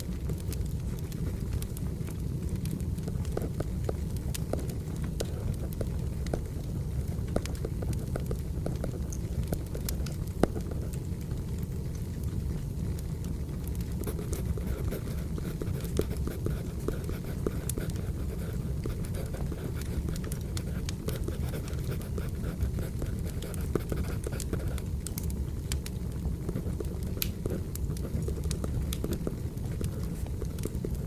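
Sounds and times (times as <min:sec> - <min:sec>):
wood fire crackling and popping: 0:00.0 - 0:31.0
pencil scratching on paper: 0:14.1 - 0:24.8.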